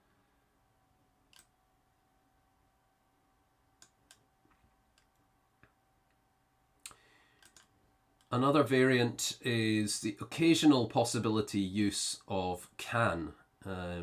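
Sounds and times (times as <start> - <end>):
faint steady hum: 0.0 - 14.0
faint clicks: 1.3 - 1.6, 6.8 - 8.3.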